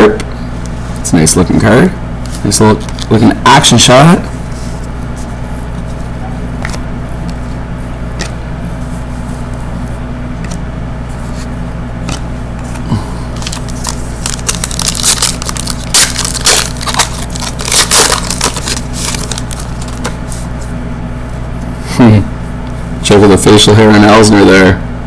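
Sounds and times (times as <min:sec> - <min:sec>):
cards crinkling and rustling: 0:02.2 - 0:03.7, 0:04.5 - 0:20.8.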